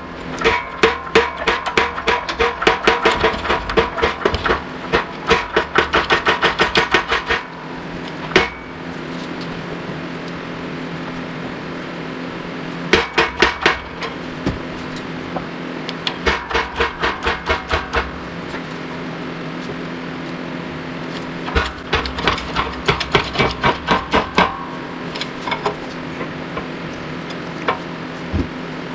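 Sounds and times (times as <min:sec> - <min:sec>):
metal-on-metal knocks: 0:00.4 - 0:07.5, 0:08.3 - 0:08.8, 0:13.0 - 0:14.6, 0:16.1 - 0:18.3, 0:21.5 - 0:26.3.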